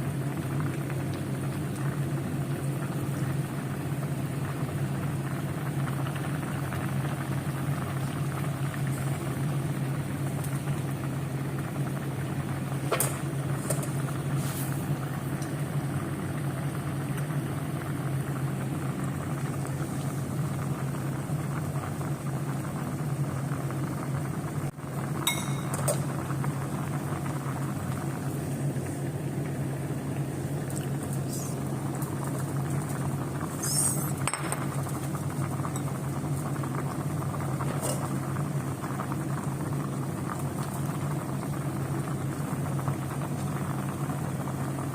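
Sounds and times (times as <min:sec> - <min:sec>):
steady low hum: 0:00.0 - 0:44.9
dishes clinking: 0:25.3 - 0:26.0.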